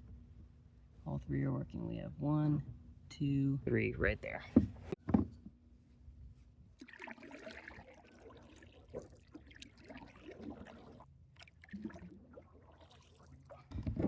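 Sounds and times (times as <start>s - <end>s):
handling knocks: 4.5s - 5.5s
faint water trickling and dripping: 6.7s - 14.0s.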